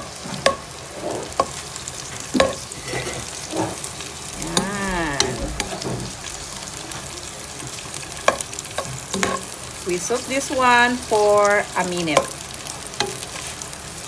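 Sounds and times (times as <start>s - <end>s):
spatula clacking against wok: 0.0s - 0.7s, 8.2s - 9.6s
peppers sizzling in hot oil: 0.0s - 14.0s.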